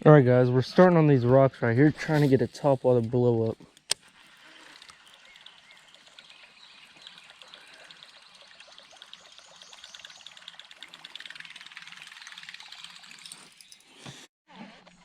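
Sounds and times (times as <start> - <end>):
faint trickling water: 4.1 - 13.9.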